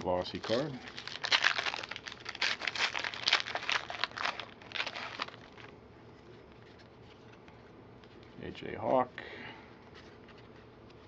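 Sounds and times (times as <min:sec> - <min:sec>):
card wrapper crinkling: 0:00.0 - 0:05.8.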